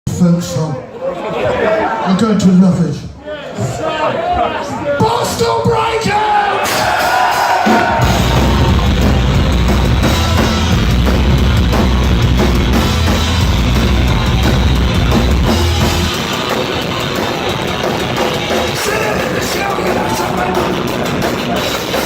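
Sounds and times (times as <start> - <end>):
punk rock band playing: 6.6 - 22.0
heavy bass guitar: 7.7 - 22.0.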